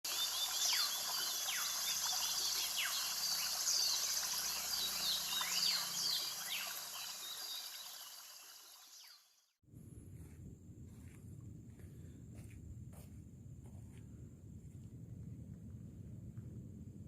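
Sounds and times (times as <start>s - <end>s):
birds whistling: 0.1s - 8.1s
insects droning: 0.1s - 9.4s.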